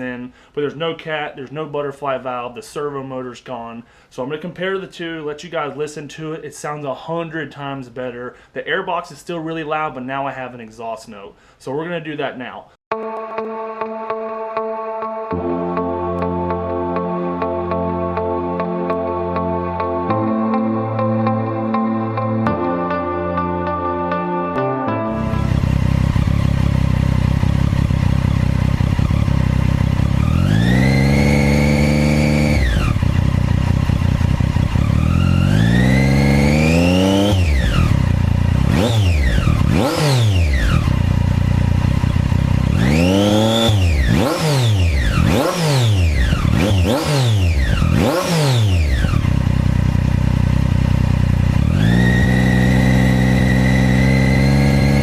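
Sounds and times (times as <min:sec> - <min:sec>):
motorcycle engine revving: 0:25.1 - 0:55.0.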